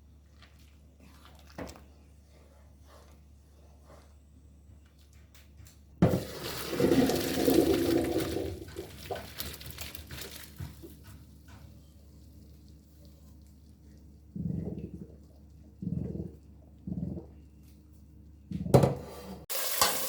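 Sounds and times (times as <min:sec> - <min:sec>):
cooking pot hissing and bubbling: 0:06.0 - 0:10.0, 0:19.5 - 0:20.0.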